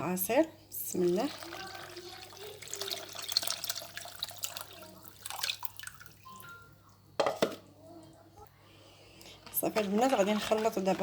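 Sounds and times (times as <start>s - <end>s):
juice pouring and splashing: 1.0s - 6.5s.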